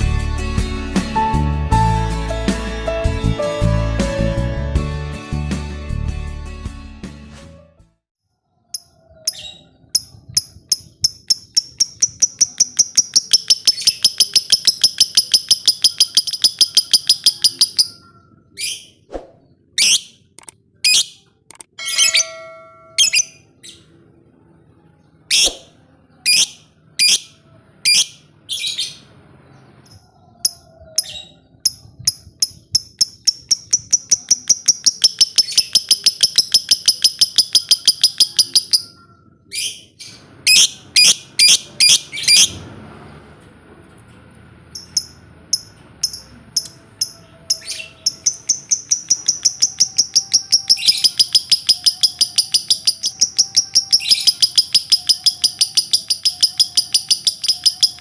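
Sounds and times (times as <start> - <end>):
lovebird chattering trill: 8.8 - 18.2, 31.7 - 39.0, 44.8 - 58.0
lovebird shrill calls: 10.7 - 18.0, 32.8 - 38.9, 47.6 - 58.0.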